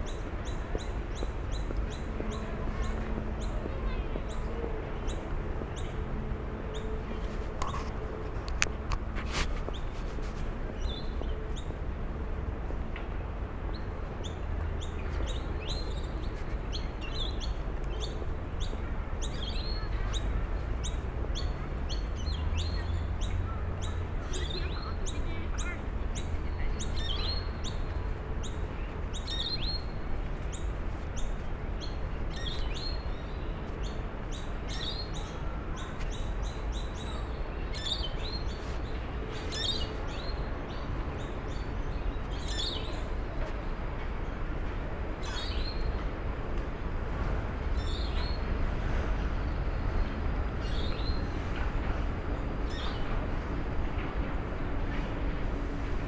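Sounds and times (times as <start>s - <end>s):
birds chirping: 0.0s - 11.8s.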